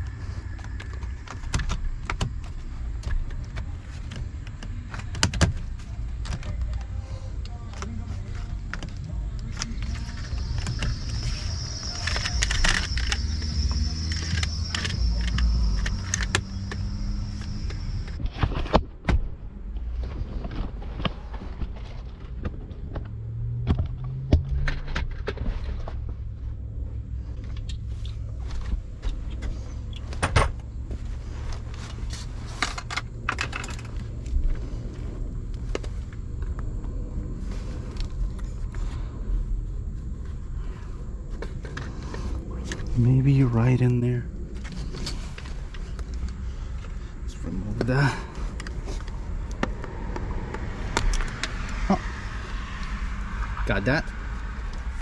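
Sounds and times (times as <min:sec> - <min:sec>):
low hum: 0:00.0 - 0:55.0
high steady whine: 0:07.5 - 0:21.3
metal tools clinking: 0:32.5 - 0:34.0.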